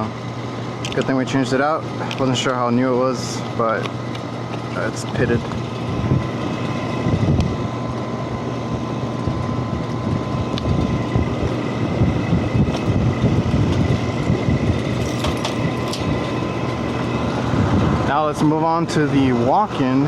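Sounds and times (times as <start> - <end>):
air conditioning hum: 0.0 - 20.0
faint steady whine: 0.0 - 20.0
low rumble: 9.2 - 18.1.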